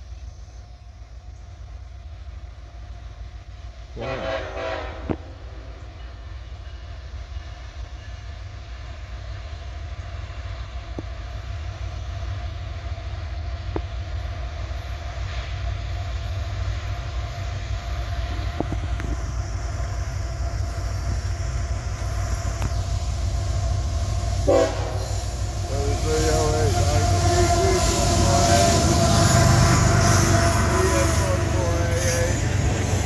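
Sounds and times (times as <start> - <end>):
diesel locomotive rumble: 0.0 - 33.0
rail clicks: 16.9 - 33.0.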